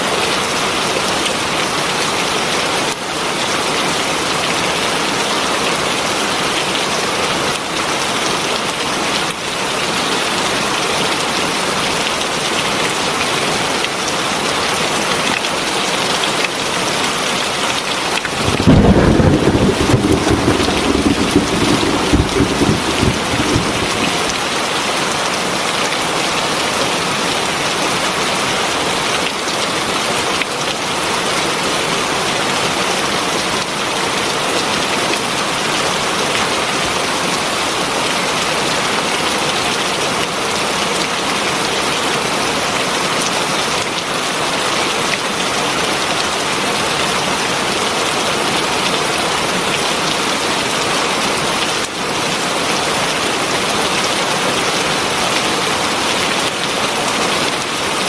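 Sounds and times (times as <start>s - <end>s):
heavy rain falling: 18.2s - 24.6s.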